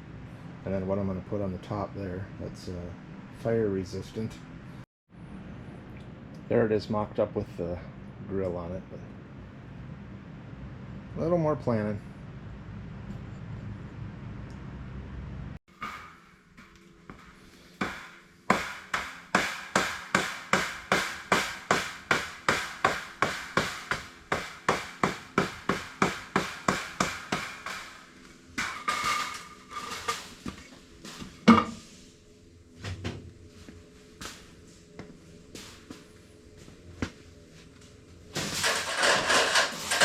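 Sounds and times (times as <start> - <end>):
hammer striking: 15.7 - 30.1.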